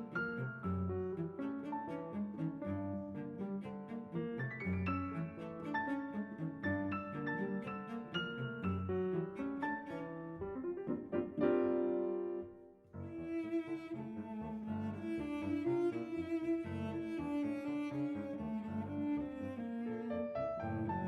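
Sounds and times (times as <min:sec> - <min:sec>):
slow cello and piano piece: 0:00.0 - 0:21.0
piano and mallet notes: 0:10.4 - 0:12.7.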